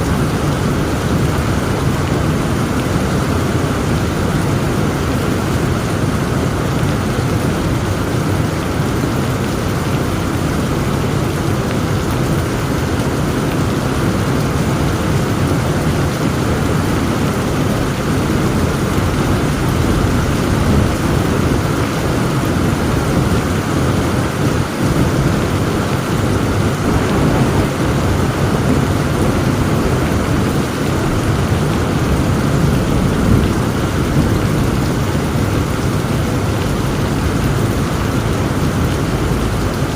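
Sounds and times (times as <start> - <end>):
heavy rain falling: 0.0 - 39.9
low rumble of thunder: 8.5 - 39.9.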